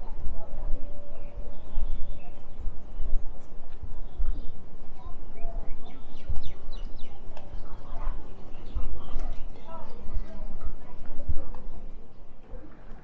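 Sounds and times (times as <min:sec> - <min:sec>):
small birds chirping: 0:00.6 - 0:10.9.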